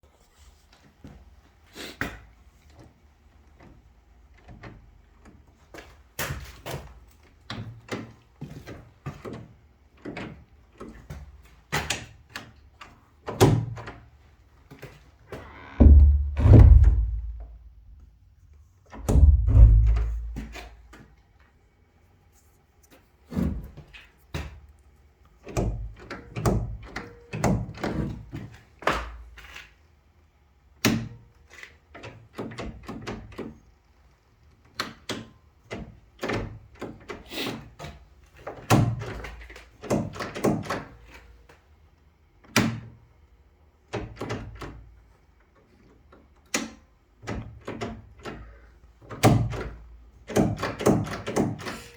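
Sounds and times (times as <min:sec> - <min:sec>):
heavy low thumps: 0:15.8 - 0:18.0, 0:19.1 - 0:20.4.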